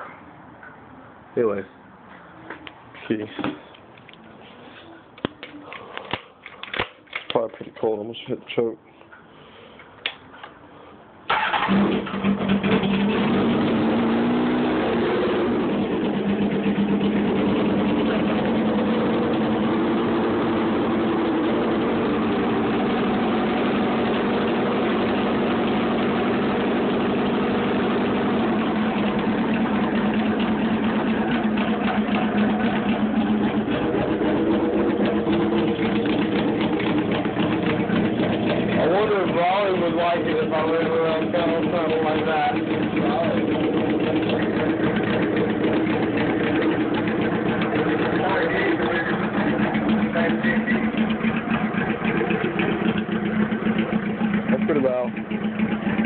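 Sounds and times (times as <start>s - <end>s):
motorcycle engine starting: 11.3s - 56.0s
motorcycle engine idling loudly: 15.5s - 56.0s.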